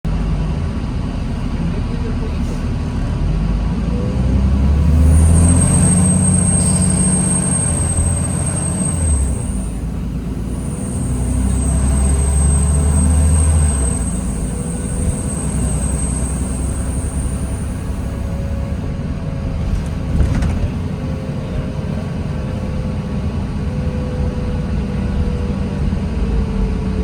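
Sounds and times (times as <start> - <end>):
bus engine rumble: 0.0 - 27.0
high steady whine: 4.8 - 19.0.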